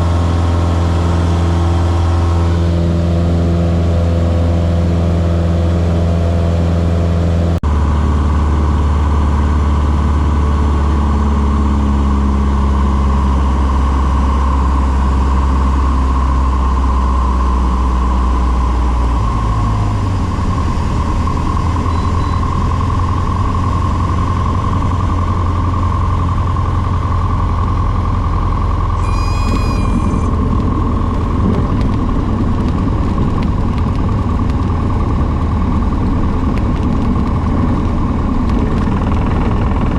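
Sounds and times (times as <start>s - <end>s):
airplane engine and propeller drone: 0.0s - 39.9s
short high electronic tone: 29.0s - 30.6s.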